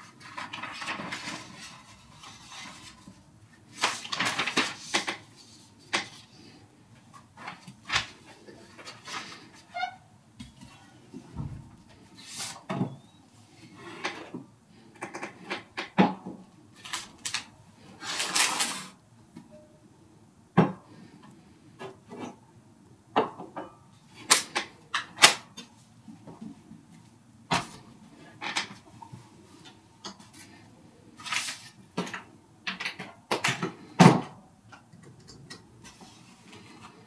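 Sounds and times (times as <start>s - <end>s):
scraping or rustling noise: 0.0s - 10.0s, 10.6s - 12.7s, 16.8s - 19.0s, 31.2s - 31.8s.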